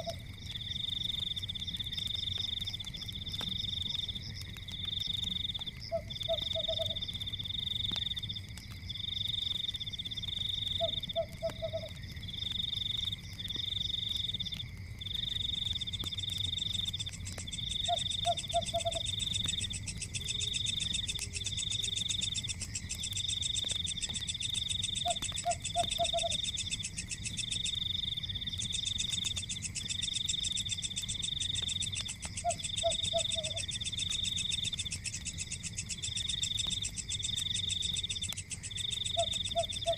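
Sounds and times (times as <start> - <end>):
frog croak: 0.0 - 0.3, 5.5 - 7.1, 10.4 - 12.1, 15.4 - 39.9
insect buzz: 0.0 - 39.9.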